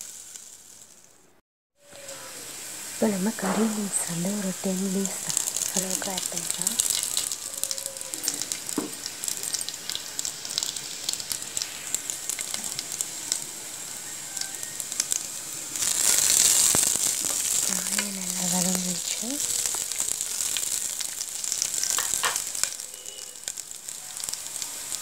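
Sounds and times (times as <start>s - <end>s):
food sizzling in hot oil: 0.0s - 25.0s.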